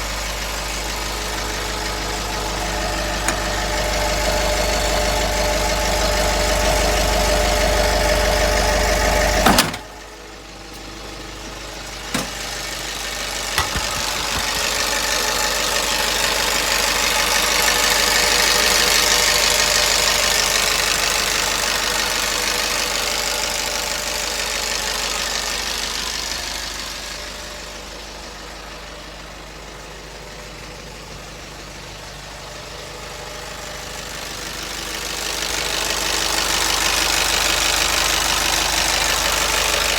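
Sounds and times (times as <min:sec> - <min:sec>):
truck engine idling: 0:00.0 - 0:39.9
sudden knock: 0:13.6 - 0:15.4.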